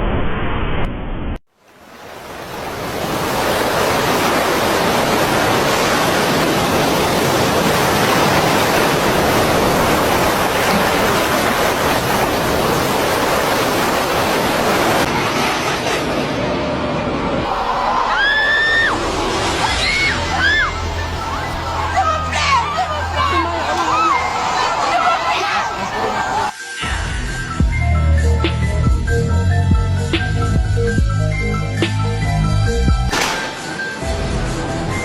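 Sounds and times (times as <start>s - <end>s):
roar of rushing water: 1.7s - 16.4s, 17.4s - 26.5s.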